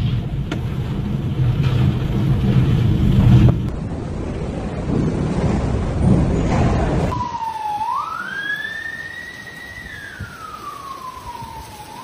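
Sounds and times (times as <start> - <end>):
wind buffeting microphone: 0.0 - 12.0
emergency siren wailing: 7.1 - 12.0.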